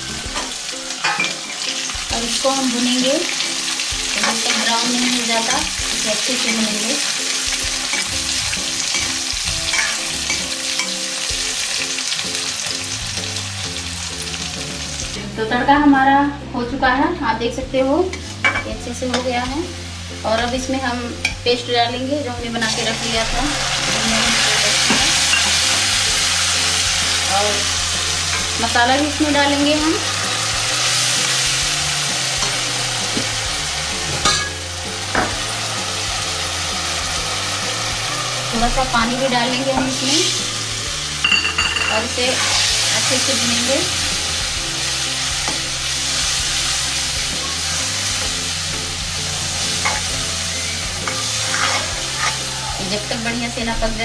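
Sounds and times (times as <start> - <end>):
food sizzling in hot oil: 0.0 - 17.3, 18.0 - 54.0
spatula stirring and scraping: 49.4 - 53.1.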